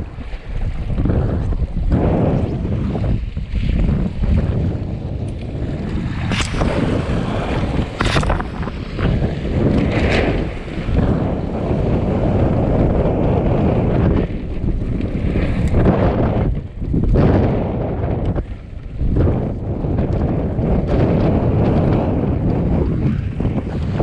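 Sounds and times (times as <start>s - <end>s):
water rushing past hulls: 0.0s - 24.0s
wind buffeting microphone: 0.0s - 24.0s
sharp water splashes: 6.0s - 11.6s.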